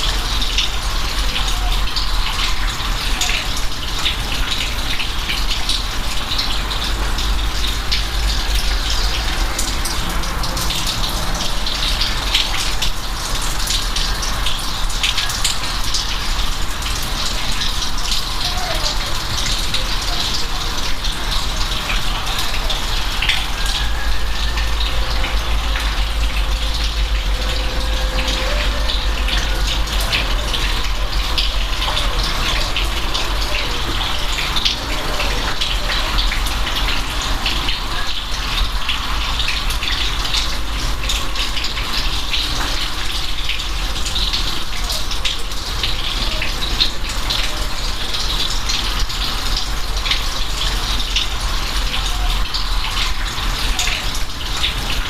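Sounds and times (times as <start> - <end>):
steady rain: 0.0 - 55.0
low rumble: 24.4 - 31.8.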